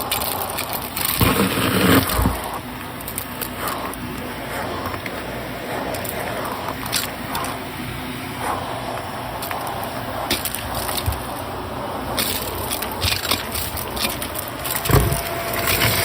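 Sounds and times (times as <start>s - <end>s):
debris crackling and rattling: 0.0s - 2.4s, 12.2s - 16.0s
vacuum cleaner running: 0.0s - 16.0s.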